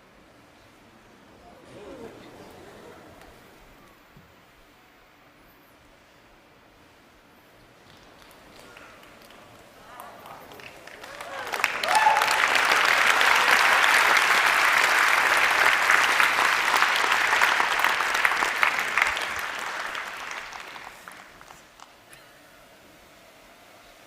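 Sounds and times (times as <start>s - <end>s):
large audience applauding: 7.8s - 22.0s.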